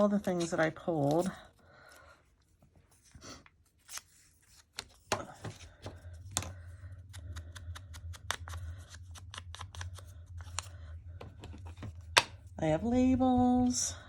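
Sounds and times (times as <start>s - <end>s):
steady low hum: 4.9s - 14.0s.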